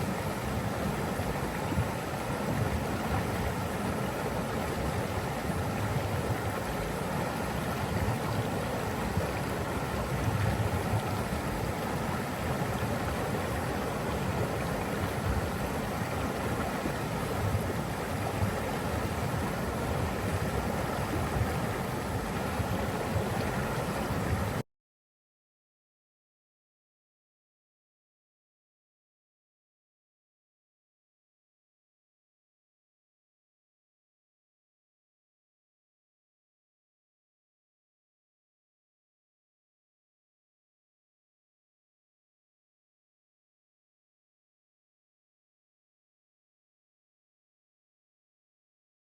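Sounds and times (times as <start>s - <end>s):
rushing water: 0.0s - 24.6s.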